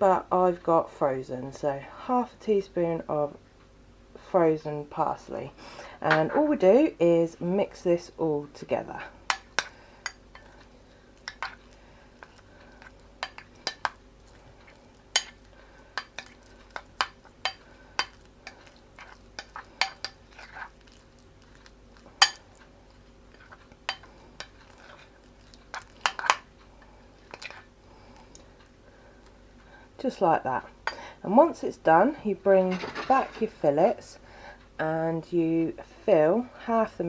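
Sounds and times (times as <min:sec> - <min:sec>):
faint steady hum: 0:00.0 - 0:37.0
spoon scraping a bowl: 0:11.3 - 0:22.6, 0:23.3 - 0:26.4.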